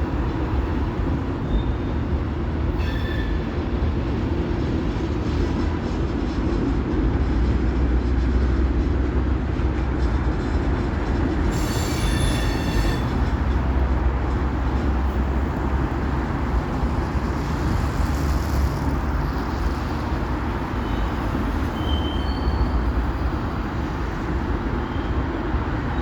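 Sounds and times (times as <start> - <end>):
train rumbling on rails: 0.0 - 26.0
train wheels squealing: 1.3 - 3.6, 11.4 - 14.9, 20.6 - 26.0.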